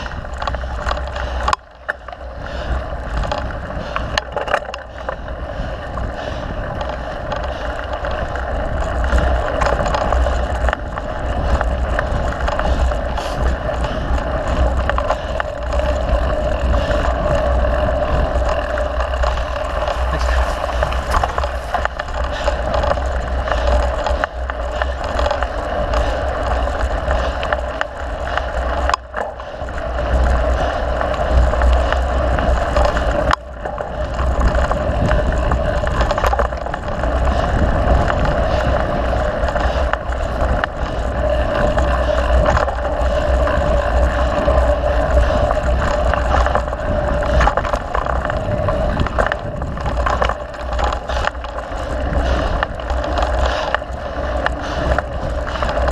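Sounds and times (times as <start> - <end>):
bike tyre noise: 0.0 - 55.9
wind on microphone: 0.0 - 55.9
chain and frame rattles: 3.1 - 55.9.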